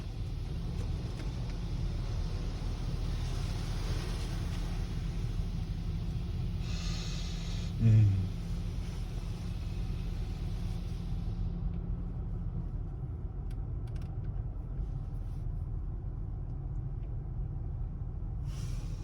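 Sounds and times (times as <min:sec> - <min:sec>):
low rumble inside car: 0:00.0 - 0:19.0
hiss: 0:02.6 - 0:11.6, 0:18.5 - 0:19.0.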